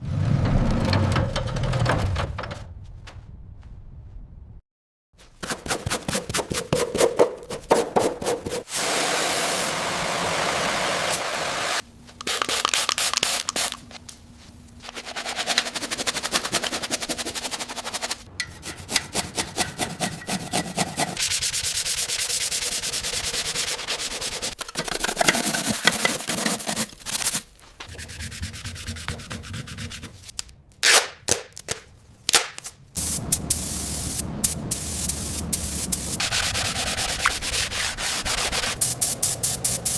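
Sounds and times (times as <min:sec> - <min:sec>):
abrasive sanding on metal: 0:14.8 - 0:30.2, 0:35.9 - 0:39.9.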